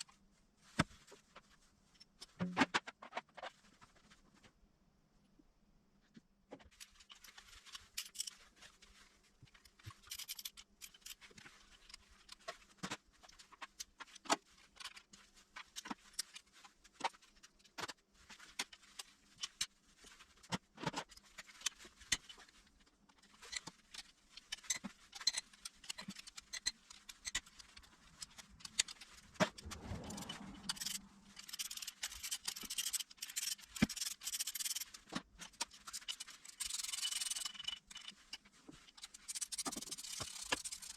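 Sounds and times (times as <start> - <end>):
metal scraping: 28.2 - 34.9.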